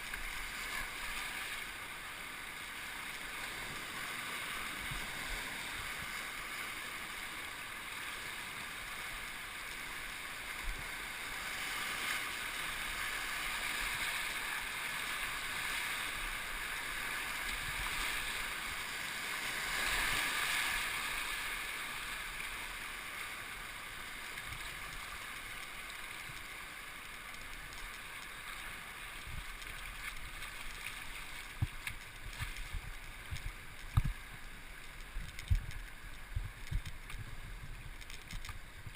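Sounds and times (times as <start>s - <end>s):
rushing river water: 0.0s - 38.9s.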